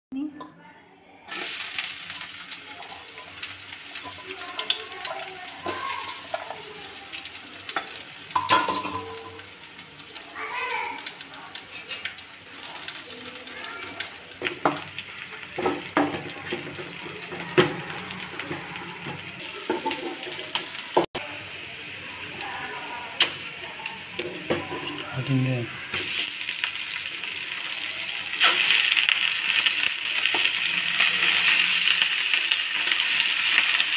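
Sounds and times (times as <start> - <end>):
onions sizzling in hot oil: 1.3 - 33.9.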